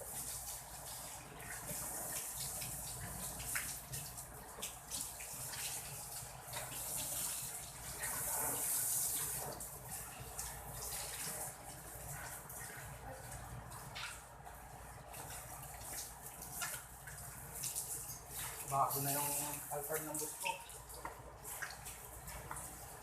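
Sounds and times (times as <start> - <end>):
hose spraying water: 0.0 - 23.0
water splashes and knocks: 0.0 - 23.0.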